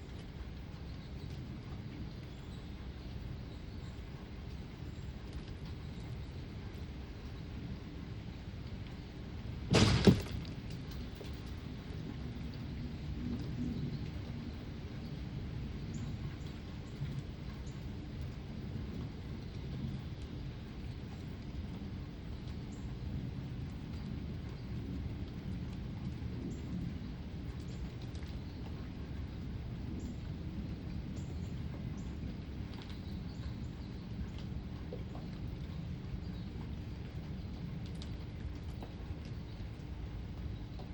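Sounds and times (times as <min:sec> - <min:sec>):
rain ambience: 0:00.0 - 0:40.9
loud clatter: 0:09.7 - 0:11.5.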